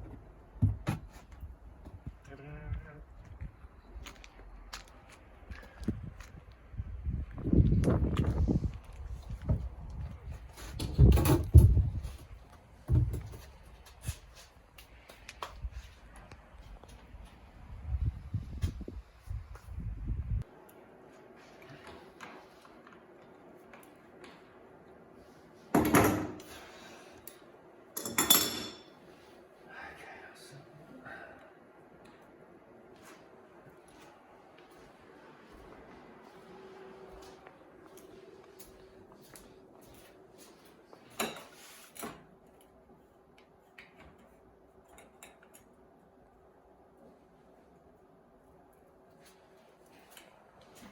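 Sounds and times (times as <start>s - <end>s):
faint steady hum: 14.7s - 50.9s.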